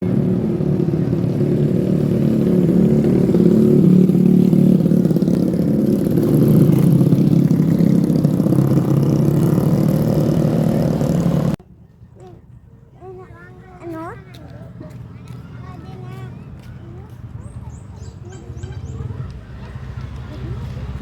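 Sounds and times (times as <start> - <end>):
diesel locomotive engine drone: 0.0 - 11.6.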